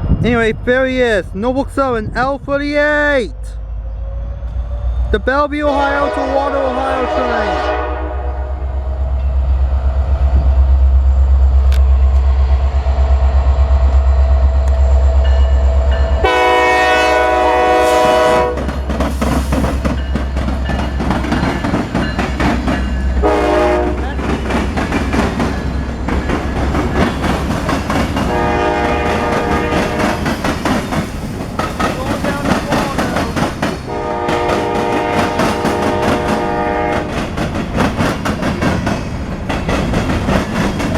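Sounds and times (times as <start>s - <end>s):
locomotive engine rumble: 0.0s - 40.9s
train horn: 5.6s - 9.0s, 16.2s - 18.8s, 23.2s - 24.3s, 28.2s - 30.3s, 33.9s - 37.2s
train wheels clattering on rails: 17.5s - 40.9s.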